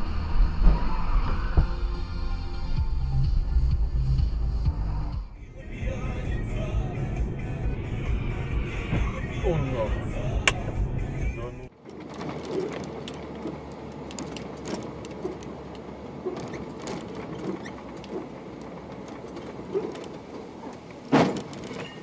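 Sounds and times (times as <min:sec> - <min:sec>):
vehicle road noise: 0:00.0 - 0:22.0
small rattles and clicks: 0:11.8 - 0:22.0.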